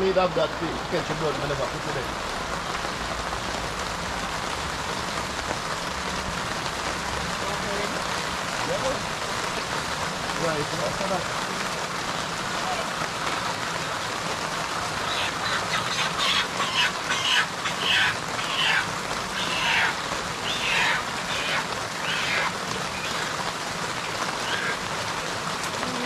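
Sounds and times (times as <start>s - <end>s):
steady hiss: 0.0s - 26.0s
poultry squawking: 14.9s - 24.9s.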